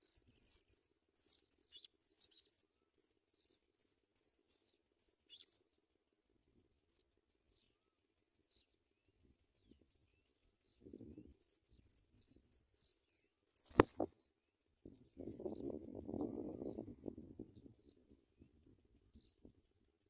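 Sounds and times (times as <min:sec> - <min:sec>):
bird chirps high and thin: 0:00.0 - 0:05.6, 0:11.4 - 0:13.8, 0:15.2 - 0:15.8.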